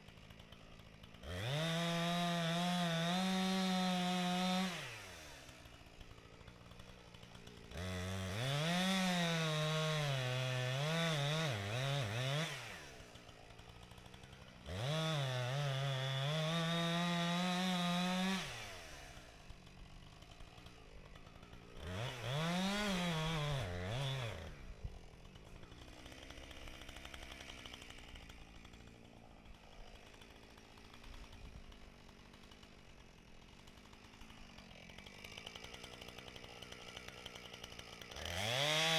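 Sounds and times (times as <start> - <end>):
chainsaw revving while cutting wood: 0.0 - 38.9.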